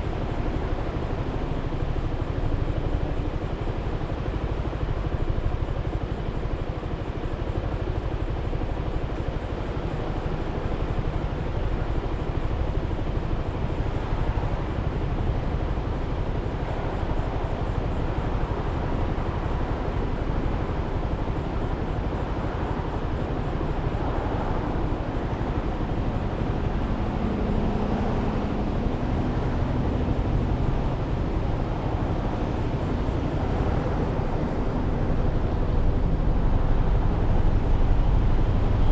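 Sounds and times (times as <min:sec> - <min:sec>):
road noise: 0:10.7 - 0:38.9
wind rushing on microphone: 0:12.6 - 0:38.9.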